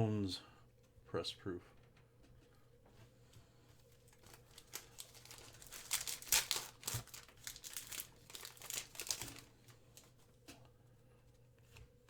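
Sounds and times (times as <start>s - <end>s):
foil wrapper crinkling: 3.8s - 10.2s.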